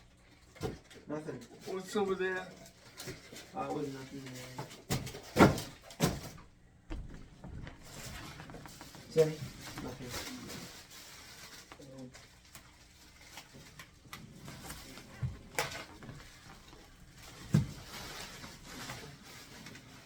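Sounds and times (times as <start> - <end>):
heavy thumps: 5.4 - 10.1.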